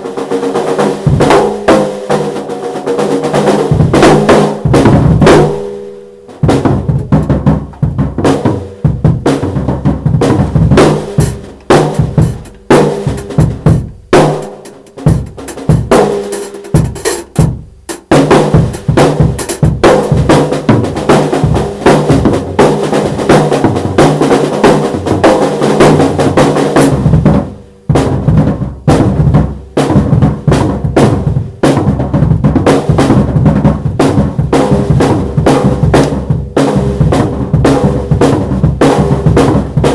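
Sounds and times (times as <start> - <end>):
drum kit playing fast fills: 0.0 - 39.9.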